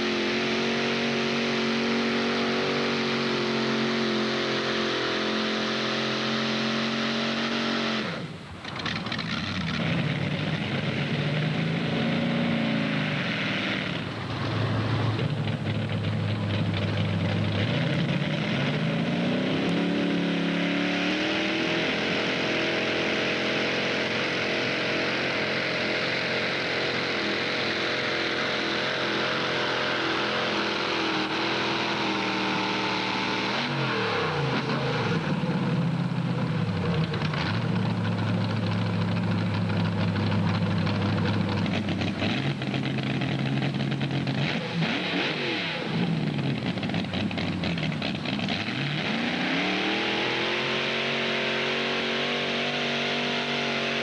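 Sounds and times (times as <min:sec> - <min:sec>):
tractor engine revving: 0:00.0 - 0:54.0.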